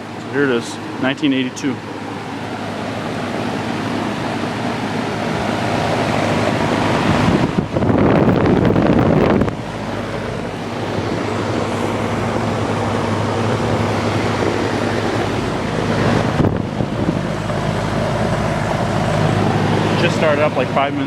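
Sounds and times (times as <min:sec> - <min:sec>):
compressor hum: 0:00.0 - 0:21.0
condenser fan rushing: 0:00.0 - 0:21.0.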